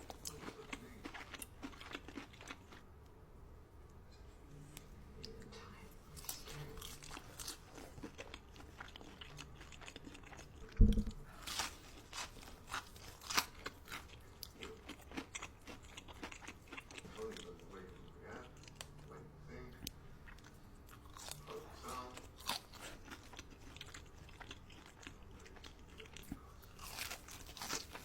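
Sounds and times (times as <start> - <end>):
crunchy food being chewed: 0.0 - 2.9, 5.2 - 28.0
loud dull low thump: 10.8 - 11.3.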